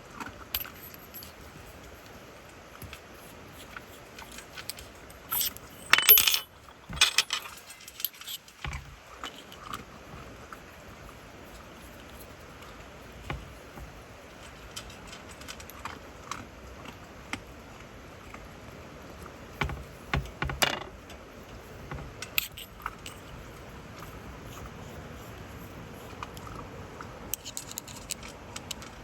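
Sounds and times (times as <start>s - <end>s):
metallic clinks and rattles: 0.2s - 1.7s, 3.6s - 9.8s, 22.2s - 23.5s, 27.3s - 29.0s.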